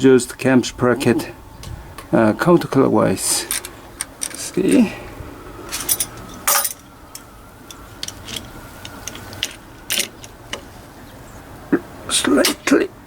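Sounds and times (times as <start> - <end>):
metallic clicks and clinks of tools: 3.5 - 4.4, 5.7 - 10.4.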